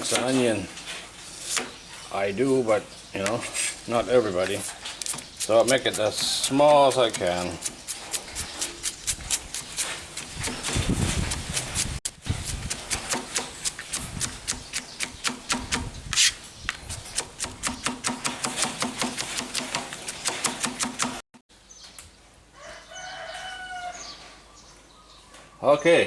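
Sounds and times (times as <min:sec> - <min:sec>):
knife chopping on cutting board: 0:05.1 - 0:16.3, 0:16.9 - 0:21.2
rooster crowing: 0:22.5 - 0:24.4.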